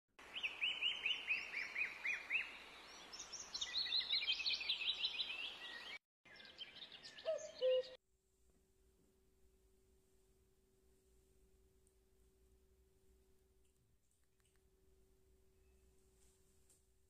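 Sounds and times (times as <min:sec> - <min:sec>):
birds chirping: 0:00.3 - 0:08.0
low bird call: 0:04.6 - 0:08.0.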